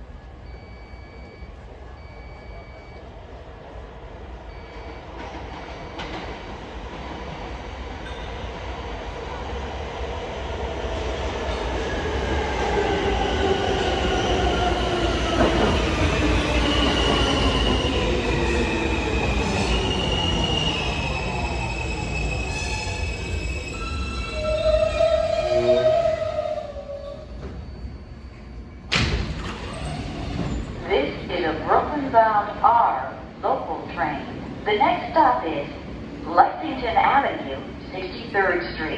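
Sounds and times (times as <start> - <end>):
subway train rumble: 0.0 - 38.9
train wheels squealing: 15.3 - 28.9.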